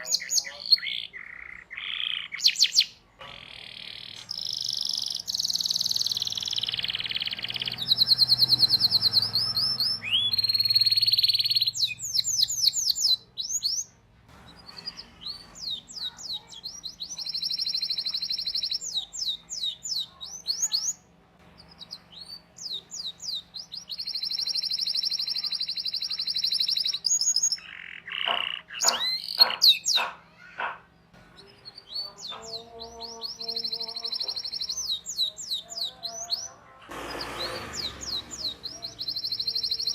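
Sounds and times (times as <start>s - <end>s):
canary chirps: 0.0s - 39.9s
canary trilling: 0.0s - 39.9s.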